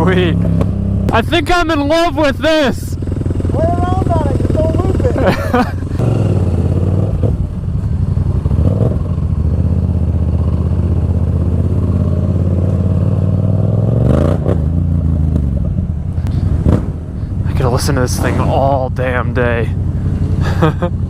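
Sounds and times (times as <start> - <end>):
motorcycle engine and exhaust: 0.0 - 21.0.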